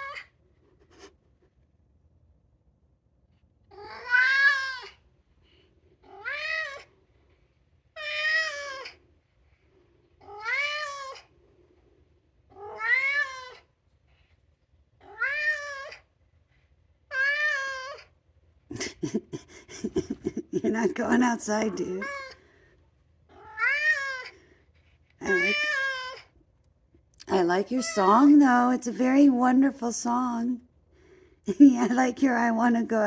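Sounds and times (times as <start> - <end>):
cat meowing: 3.7 - 5.0, 10.2 - 11.3, 12.5 - 13.6, 17.1 - 18.1, 21.5 - 22.4, 23.3 - 24.4, 25.2 - 26.3, 27.8 - 28.3.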